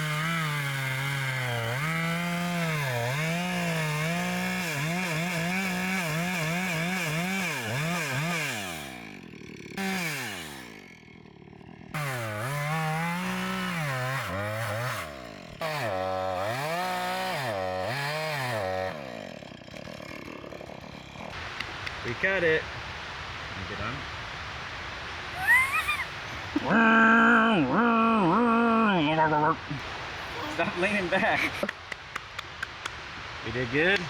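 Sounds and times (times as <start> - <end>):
chainsaw cutting wood: 0.0 - 22.2, 29.8 - 34.0.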